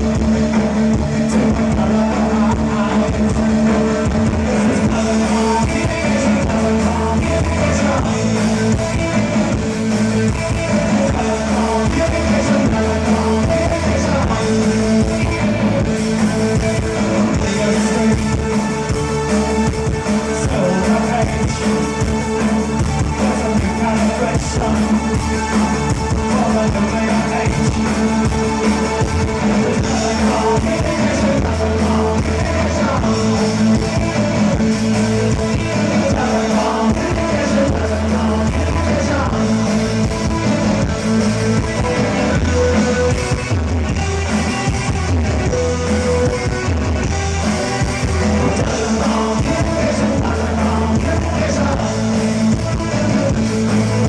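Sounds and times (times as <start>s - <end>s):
lead vocals singing: 0.0s - 54.0s
live new wave band: 0.0s - 54.0s.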